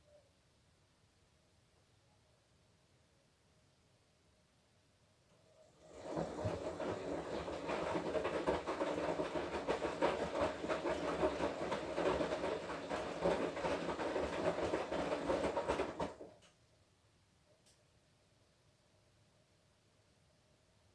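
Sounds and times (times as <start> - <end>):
washing machine drum turning: 5.8 - 16.3.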